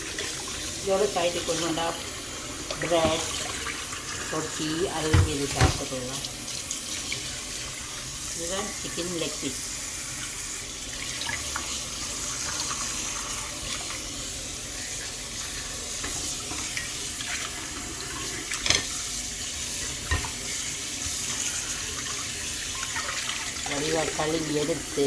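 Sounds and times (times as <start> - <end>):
tap running into sink: 2.6 - 3.8, 4.9 - 6.3, 20.0 - 20.5.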